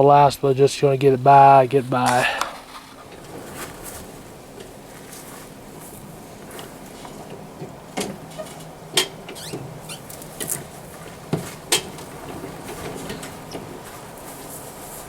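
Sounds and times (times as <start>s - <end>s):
faint steady background noise: 0.0s - 15.0s
sharp knocks and clatters: 2.7s - 14.1s.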